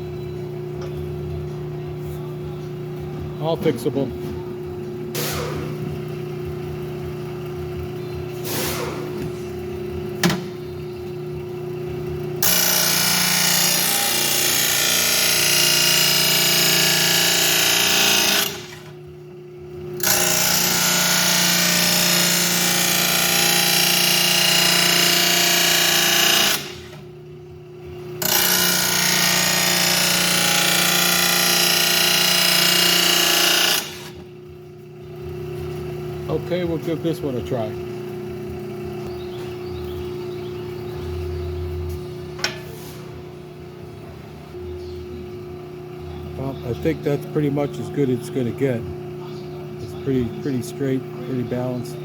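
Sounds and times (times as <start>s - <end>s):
blade sharpener motor running: 3.4s - 42.2s, 44.6s - 52.0s
metal blade on grinding wheel: 10.8s - 27.2s, 27.8s - 39.2s.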